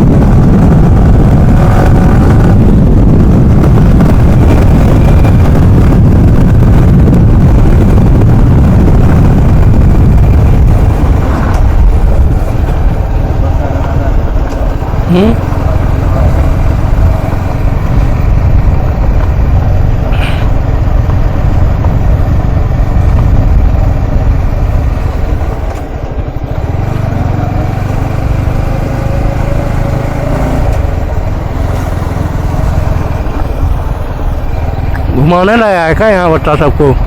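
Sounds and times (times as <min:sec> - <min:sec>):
motorcycle engine hum: 0:00.0 - 0:37.0
wind rumble on microphone: 0:00.0 - 0:37.0.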